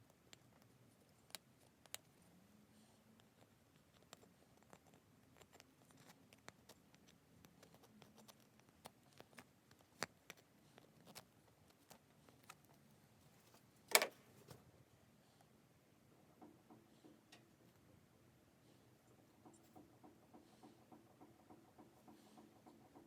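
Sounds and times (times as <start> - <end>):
faint clicks and taps: 19.1 - 23.0.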